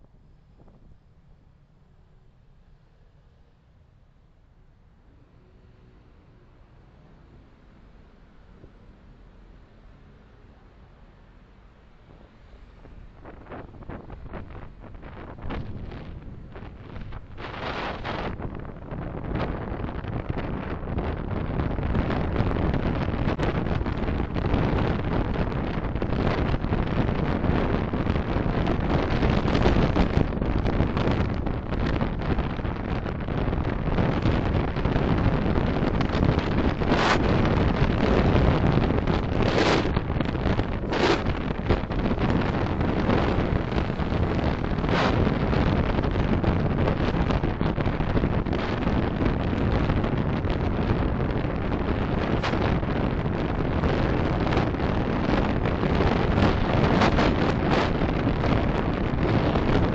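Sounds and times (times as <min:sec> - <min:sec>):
car road and wind noise: 0:00.0 - 0:59.9.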